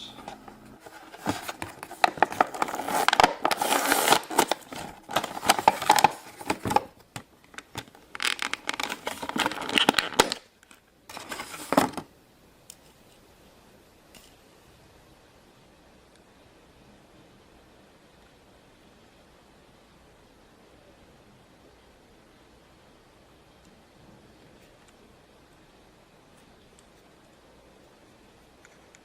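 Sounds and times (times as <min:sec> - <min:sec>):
plastic packaging crinkling: 0:00.2 - 0:12.0.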